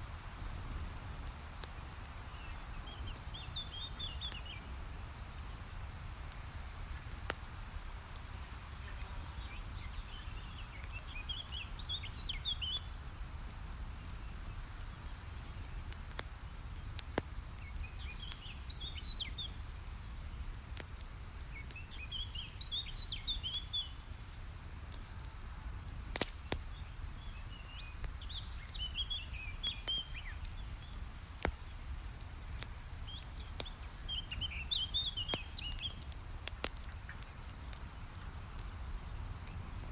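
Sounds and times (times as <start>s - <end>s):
campfire crackling: 0.0s - 39.9s
songbird chirping: 26.4s - 31.0s, 33.0s - 36.2s.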